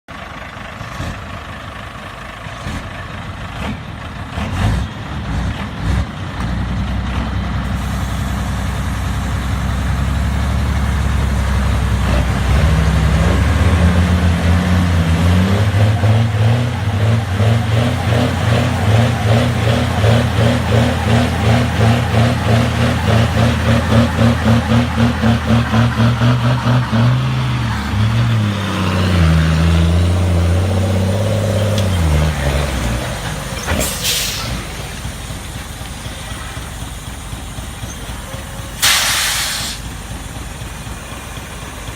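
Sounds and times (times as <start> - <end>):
heavy vehicle engines under load: 0.1 - 41.9.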